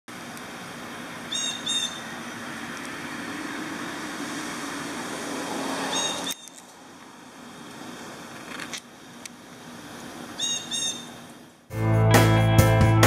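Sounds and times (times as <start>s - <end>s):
outdoor background noise: 0.1s - 11.7s
short bird calls: 1.3s - 2.2s, 5.9s - 6.6s, 10.4s - 11.2s.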